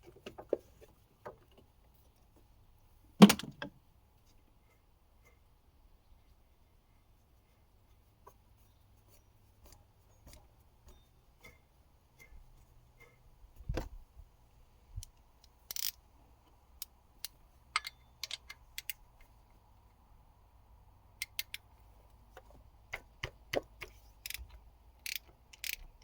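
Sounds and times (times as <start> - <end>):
hand tools clicking and tapping: 16.8 - 19.3, 22.4 - 26.0.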